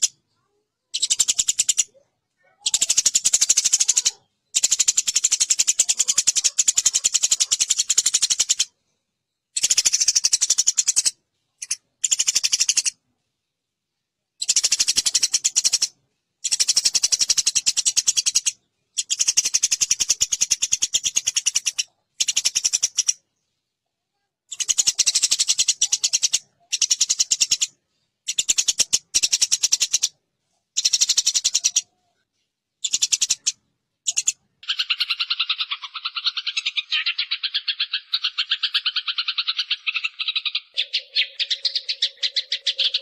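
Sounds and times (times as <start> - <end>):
sparrows chattering harshly: 0.0 - 8.8, 9.5 - 13.0, 14.4 - 23.5, 24.5 - 32.0, 32.8 - 43.0.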